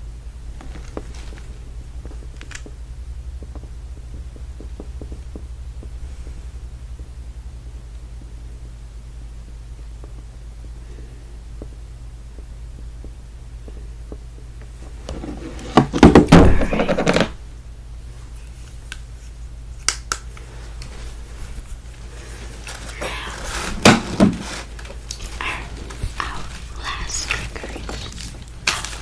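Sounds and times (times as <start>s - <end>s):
low steady hum: 0.0s - 29.0s
objects thunking and rustling: 14.8s - 17.5s, 20.5s - 29.0s
objects knocking: 15.1s - 17.4s, 22.7s - 25.0s.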